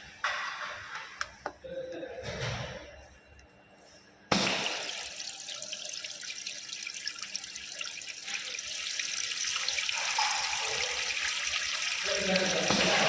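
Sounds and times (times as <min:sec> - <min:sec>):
water running and splashing: 0:04.4 - 0:13.0.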